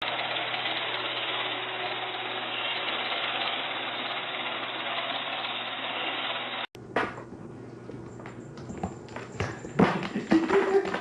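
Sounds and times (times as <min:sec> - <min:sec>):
steady machine noise: 0:00.0 - 0:06.7.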